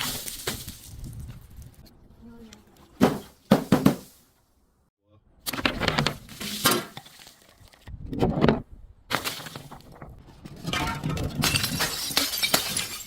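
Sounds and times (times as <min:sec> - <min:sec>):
glass breaking and crunching: 0:10.7 - 0:13.0.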